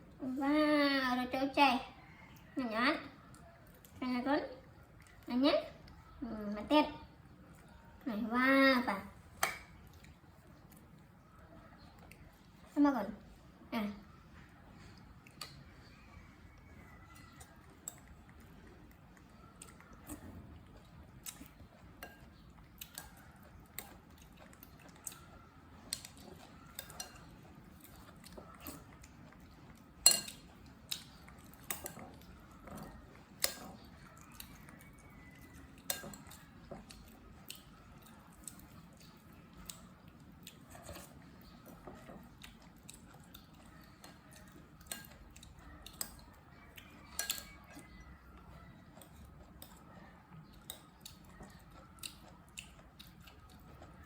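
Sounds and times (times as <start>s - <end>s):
person chewing: 9.2s - 12.7s, 14.3s - 54.0s
spoon clinking in a bowl: 26.7s - 27.3s, 30.0s - 32.0s, 34.8s - 36.4s, 46.9s - 47.9s.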